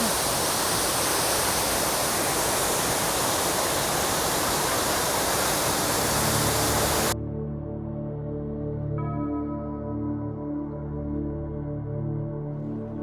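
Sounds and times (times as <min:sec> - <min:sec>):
loud rush of tall waterfall: 0:00.0 - 0:07.2.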